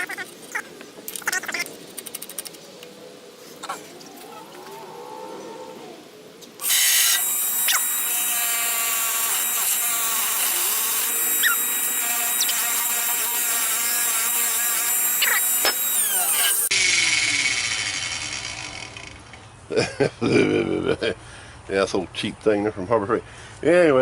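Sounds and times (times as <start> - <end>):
bench grinder motor hum: 6.6 - 19.4
rising and falling squeaks: 11.3 - 11.8, 15.1 - 19.5.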